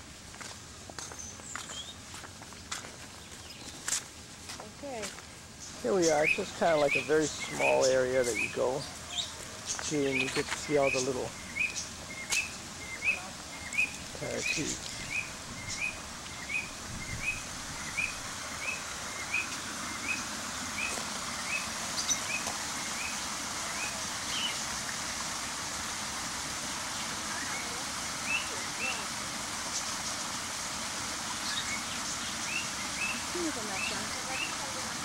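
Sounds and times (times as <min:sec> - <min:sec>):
steady hiss: 0:00.0 - 0:35.0
bird rising chirp: 0:05.6 - 0:24.6.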